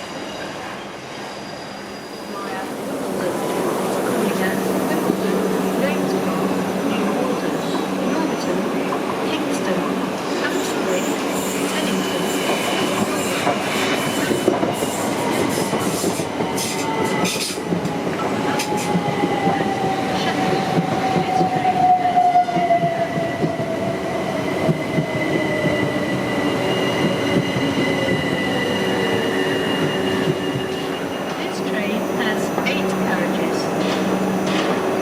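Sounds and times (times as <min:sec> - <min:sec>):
train rail noise: 0:00.0 - 0:35.0.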